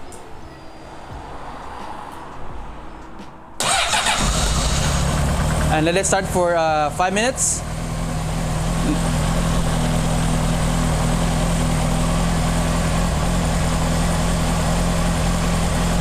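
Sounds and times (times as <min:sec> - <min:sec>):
motorcycle engine idling: 0:03.6 - 0:16.0.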